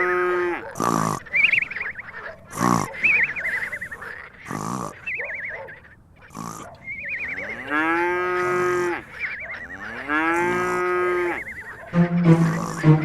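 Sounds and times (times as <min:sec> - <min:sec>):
cow mooing: 0:00.0 - 0:01.2, 0:06.4 - 0:13.0
music: 0:11.9 - 0:13.0.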